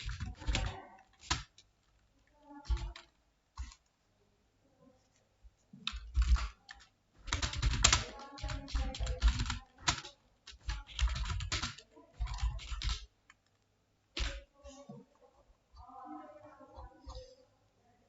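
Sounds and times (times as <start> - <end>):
typing on computer keyboard: 0.0 - 3.9, 5.8 - 14.6.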